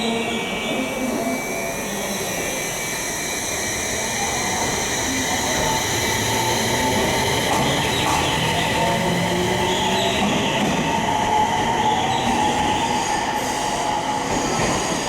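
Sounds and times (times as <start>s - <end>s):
train inverter whine: 0.0s - 15.0s
train running rumble: 3.1s - 15.0s.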